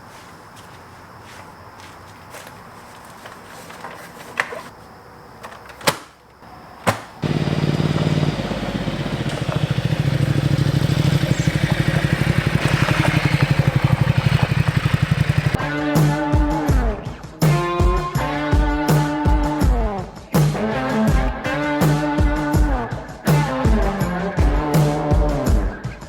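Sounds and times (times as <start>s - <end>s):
motorcycle engine idling: 7.2s - 15.6s.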